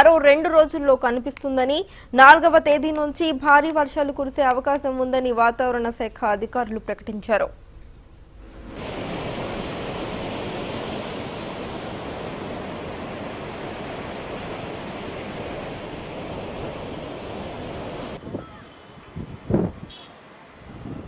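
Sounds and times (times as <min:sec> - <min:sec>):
wind: 0:00.0 - 0:21.0
rushing water: 0:08.4 - 0:19.0.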